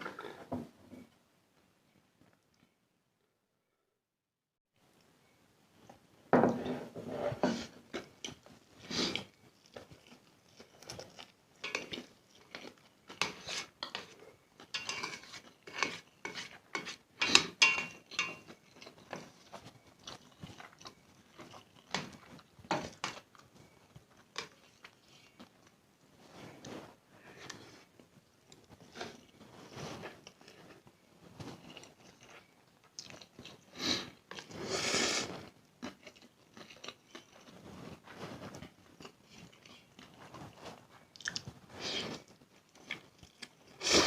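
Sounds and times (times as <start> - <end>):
wet chewing of noodles: 7.9 - 25.8, 31.5 - 44.0.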